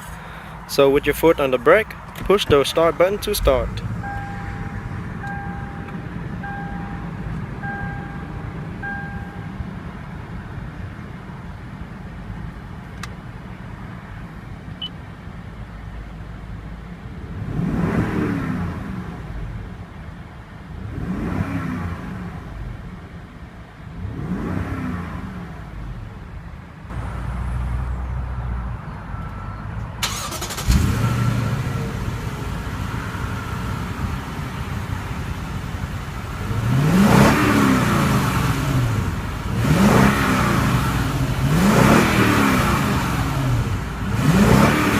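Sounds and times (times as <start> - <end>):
car engine revving: 0.0 - 10.5, 17.2 - 19.8, 20.6 - 23.1, 23.8 - 28.7, 30.0 - 44.9
dashboard chime beeping: 2.9 - 9.6.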